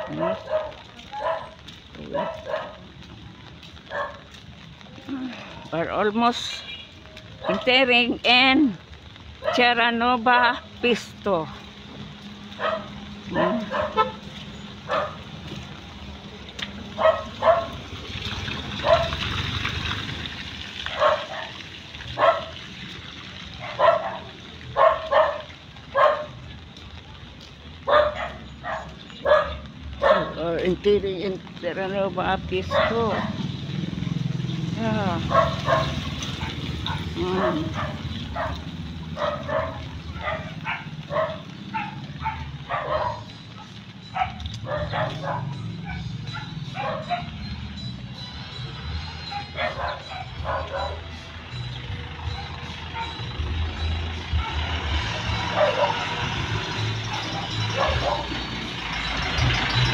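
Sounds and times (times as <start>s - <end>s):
dog barking: 0.0s - 2.9s, 3.8s - 4.4s, 7.4s - 7.7s, 9.4s - 9.7s, 12.6s - 14.2s, 14.9s - 15.3s, 16.9s - 17.8s, 18.8s - 19.2s, 20.8s - 21.6s, 22.2s - 22.6s, 23.6s - 26.4s, 27.8s - 30.4s, 32.6s - 33.5s, 35.2s - 47.5s, 49.2s - 51.1s, 52.2s - 53.4s, 54.3s - 58.4s.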